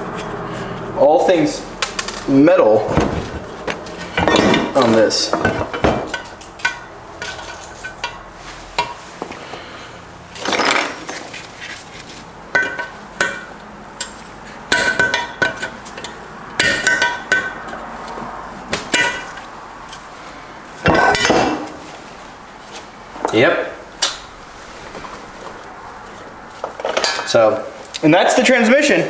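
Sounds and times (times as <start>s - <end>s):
steel parts clanking together: 2.9s - 8.2s, 10.4s - 11.4s, 26.1s - 27.4s.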